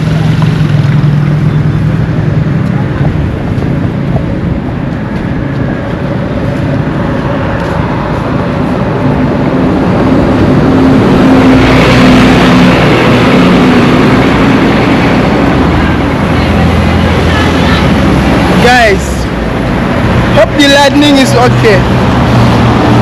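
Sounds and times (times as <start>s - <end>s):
motor vehicles on road: 0.0s - 23.0s
vehicle passing close by: 0.0s - 23.0s.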